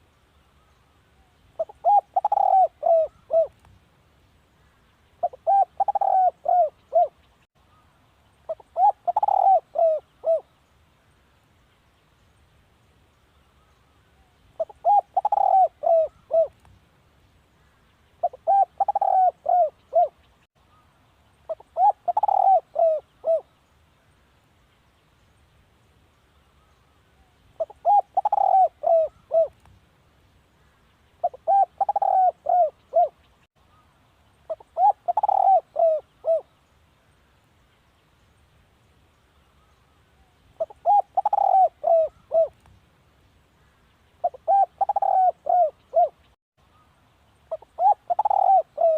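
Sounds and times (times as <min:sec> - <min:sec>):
dove cooing: 0:01.6 - 0:03.6, 0:05.2 - 0:07.2, 0:08.5 - 0:10.5, 0:14.6 - 0:16.6, 0:18.2 - 0:20.2, 0:21.5 - 0:23.5, 0:27.6 - 0:29.6, 0:31.2 - 0:33.2, 0:34.5 - 0:36.5, 0:40.6 - 0:42.6, 0:44.2 - 0:46.2, 0:47.5 - 0:48.9.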